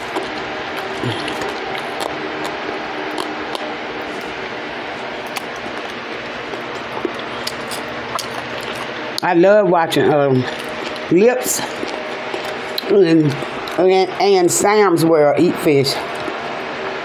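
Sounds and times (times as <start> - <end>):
wet mouth clicks: 0.0 - 4.3, 5.3 - 9.2
chewing: 0.0 - 4.4, 5.0 - 9.2, 10.4 - 13.9, 16.0 - 16.4.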